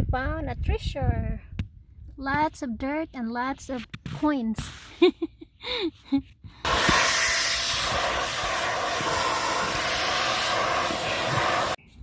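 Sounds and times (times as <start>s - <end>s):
vacuum cleaner running: 6.6s - 11.8s.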